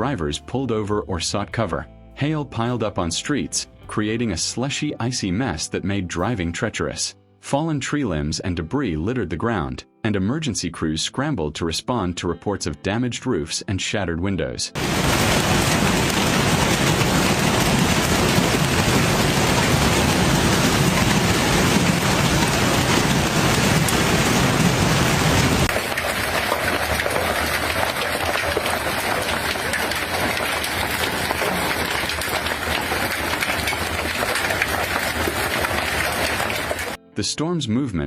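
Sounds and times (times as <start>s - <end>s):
hail and heavy rain pelting: 14.8s - 37.0s.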